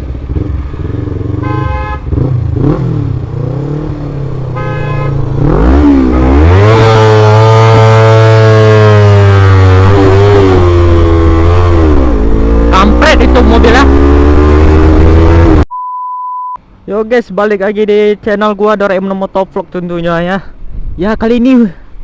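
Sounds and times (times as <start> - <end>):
road traffic: 0.0 - 15.7, 16.6 - 22.0
short vehicle horn beeps: 1.4 - 2.0, 4.6 - 5.2
long horn blare: 1.4 - 2.2, 4.6 - 5.3.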